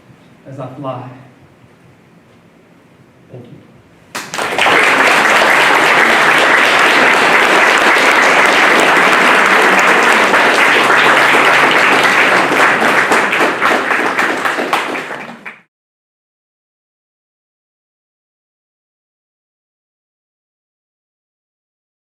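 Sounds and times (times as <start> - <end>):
audience applause: 4.2 - 15.7.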